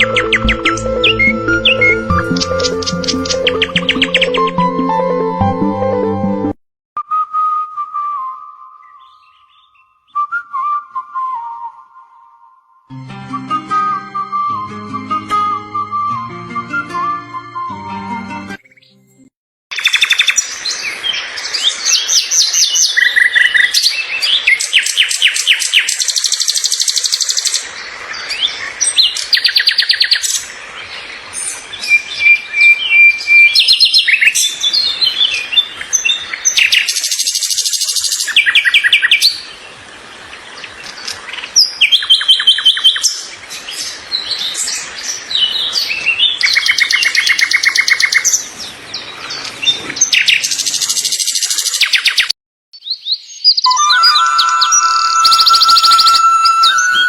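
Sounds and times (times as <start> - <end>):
small birds chirping and trilling: 0.0 - 4.4, 8.8 - 10.2, 19.8 - 56.3.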